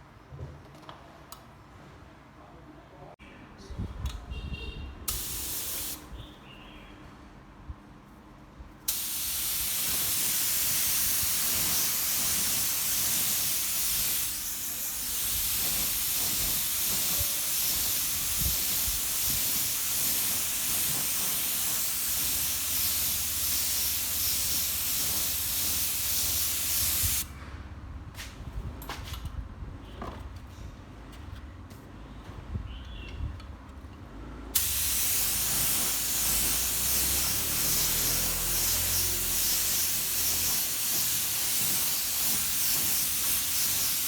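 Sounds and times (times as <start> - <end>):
paint spray hissing: 5.1 - 6.1, 8.9 - 27.3, 34.6 - 44.0.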